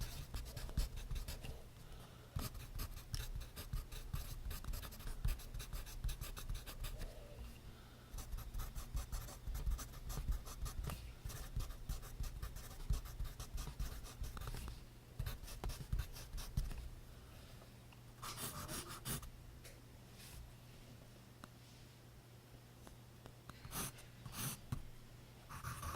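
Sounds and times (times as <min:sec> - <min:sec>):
pencil writing on paper: 0:00.0 - 0:01.5, 0:02.4 - 0:07.0, 0:08.2 - 0:14.6, 0:15.2 - 0:16.6, 0:25.5 - 0:25.9.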